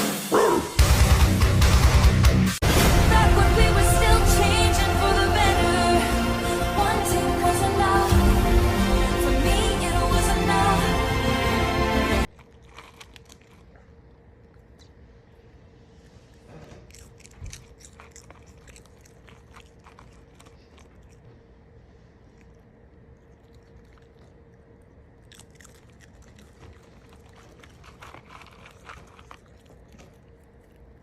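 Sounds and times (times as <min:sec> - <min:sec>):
faint steady hum: 0:03.4 - 0:31.0
animal crunchy chewing: 0:12.3 - 0:31.0.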